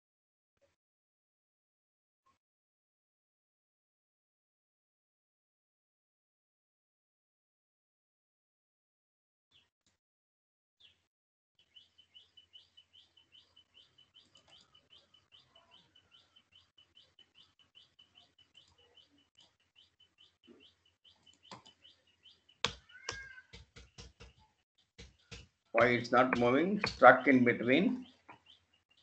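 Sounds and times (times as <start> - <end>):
small bird chirping: 10.8 - 11.0, 11.6 - 29.0
sharp knocks: 22.6 - 24.4, 25.0 - 27.4.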